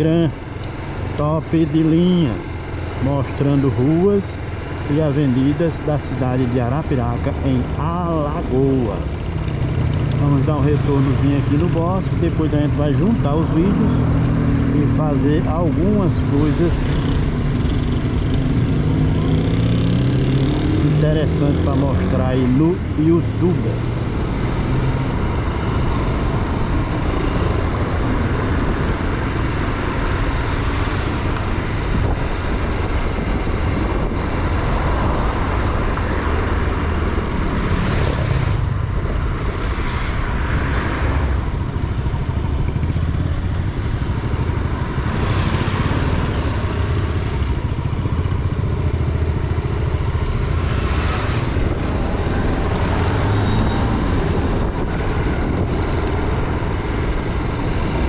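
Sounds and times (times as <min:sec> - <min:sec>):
motorcycle engine rumble: 0:00.0 - 0:58.0
wind noise on microphone: 0:24.1 - 0:49.4, 0:50.2 - 0:58.0.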